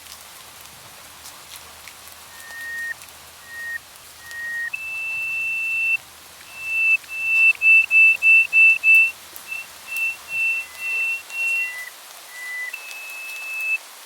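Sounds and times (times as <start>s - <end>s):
bird singing whistled notes: 2.2s - 13.8s.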